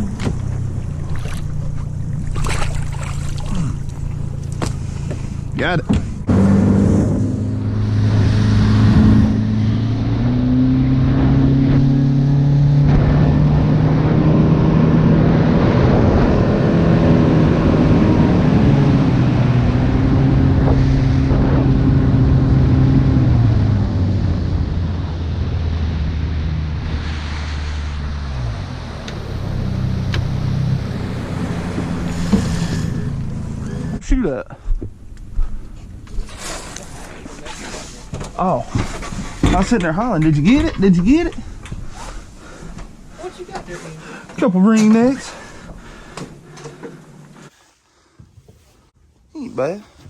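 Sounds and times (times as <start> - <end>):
outboard motor running: 0.0 - 6.3, 29.2 - 34.0
water noise: 0.0 - 23.2, 24.2 - 34.0.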